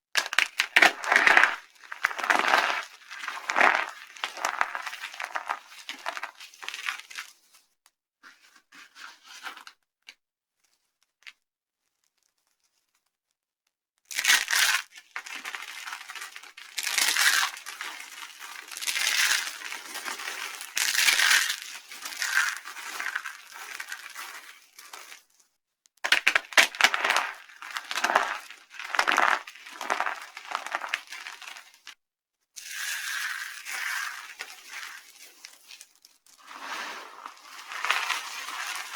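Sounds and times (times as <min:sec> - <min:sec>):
dry soap crunching: 0:00.2 - 0:07.3, 0:14.1 - 0:25.2, 0:26.1 - 0:32.0, 0:32.6 - 0:38.9.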